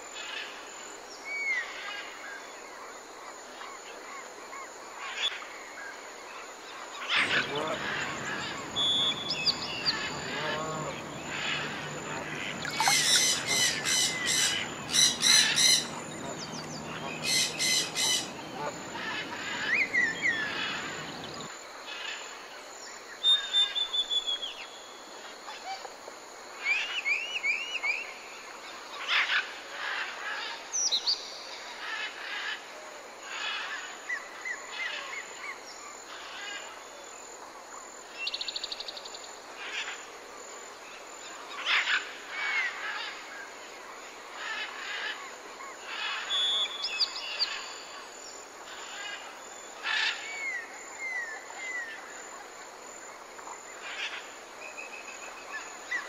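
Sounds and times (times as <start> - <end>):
songbird chirps and trills: 0.1 - 25.8, 40.8 - 56.0
harsh honking bird calls: 7.2 - 21.3.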